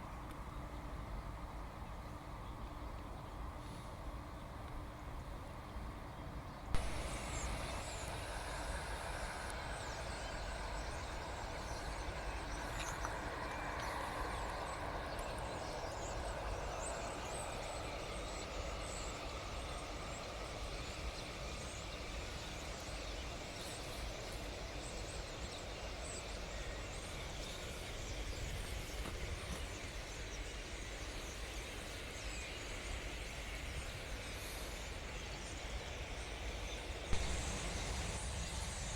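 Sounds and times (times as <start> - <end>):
small birds chirping: 6.1 - 38.9
steady rumbling background: 6.8 - 26.0, 36.8 - 38.9.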